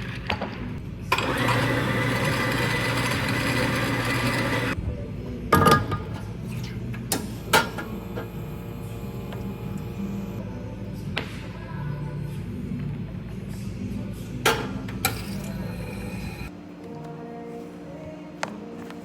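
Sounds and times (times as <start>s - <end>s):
small electric motor running: 7.4s - 10.4s.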